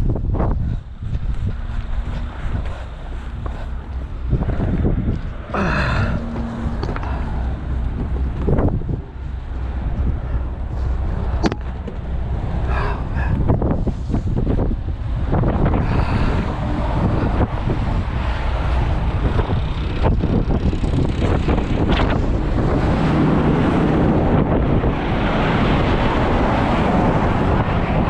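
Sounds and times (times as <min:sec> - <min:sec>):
vehicle engine rumble: 0:00.0 - 0:28.0
wind buffeting microphone: 0:00.0 - 0:28.0.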